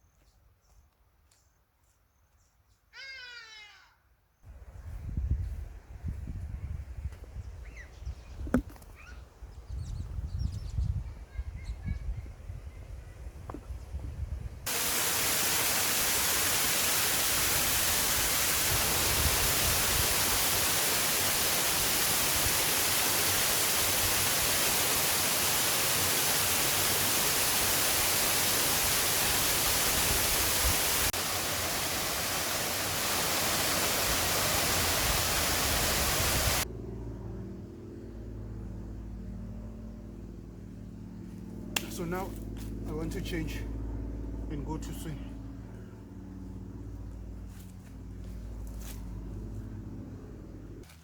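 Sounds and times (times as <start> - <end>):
fast-flowing river water: 14.7 - 36.6.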